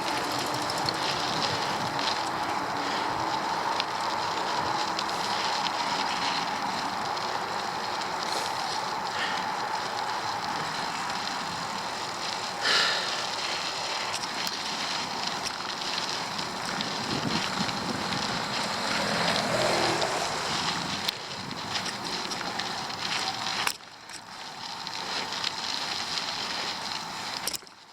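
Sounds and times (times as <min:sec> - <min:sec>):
wind on microphone: 0:00.0 - 0:07.1, 0:16.4 - 0:23.4
bicycle tyres and drivetrain: 0:00.0 - 0:27.9.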